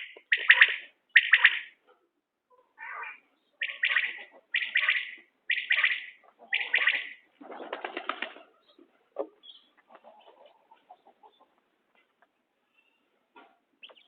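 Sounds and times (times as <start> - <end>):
quail calling: 0.0 - 1.8, 2.5 - 7.3, 8.2 - 12.2.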